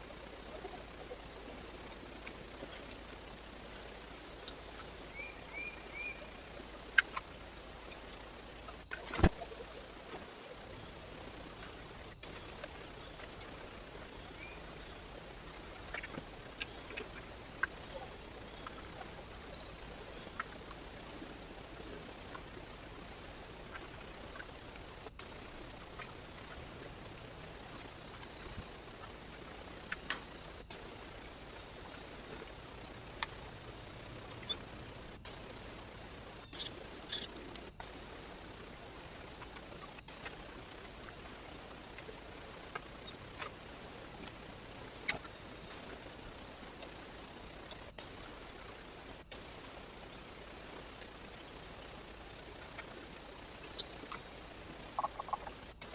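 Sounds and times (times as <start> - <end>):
microphone hiss: 0.0 - 55.9.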